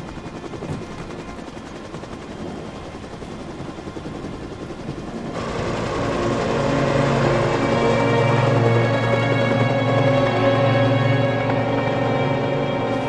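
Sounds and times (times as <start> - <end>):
helicopter rotor blades chopping: 0.0 - 13.0
dramatic music score: 5.2 - 13.0.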